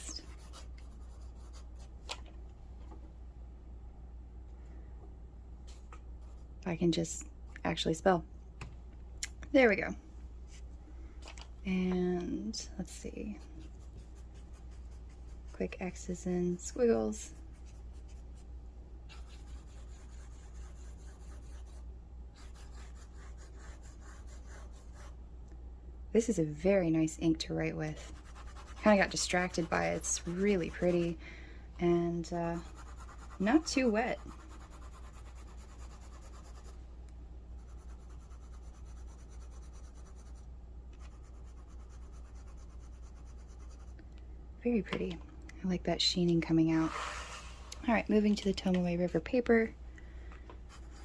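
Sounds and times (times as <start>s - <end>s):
steady low hum: 0.0s - 51.0s
fountain pen scratching on paper: 22.4s - 25.1s, 28.0s - 31.2s, 32.6s - 36.8s.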